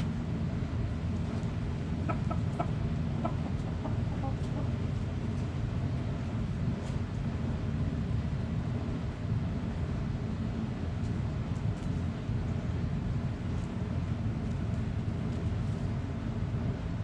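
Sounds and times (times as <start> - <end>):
low background rumble: 0.0 - 17.0
chickens clucking: 1.9 - 5.0.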